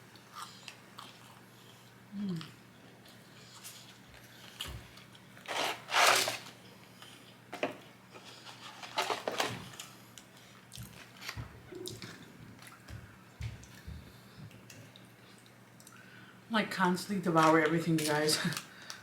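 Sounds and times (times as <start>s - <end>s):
chewing and biting: 0.2s - 5.3s.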